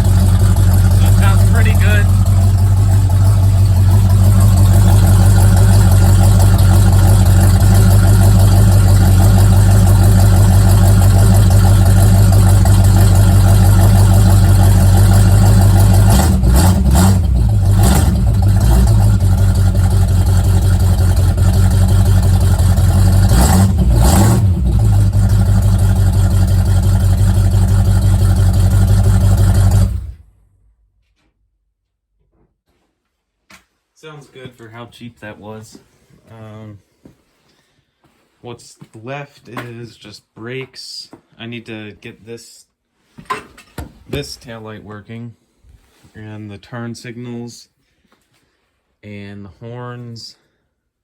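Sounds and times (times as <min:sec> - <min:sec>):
engine revving: 0:00.0 - 0:30.2
car engine idling: 0:00.0 - 0:30.3.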